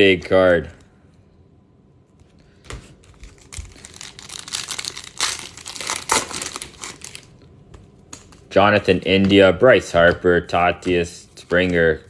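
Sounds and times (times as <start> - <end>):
plastic wrapper crinkling: 2.9 - 7.5.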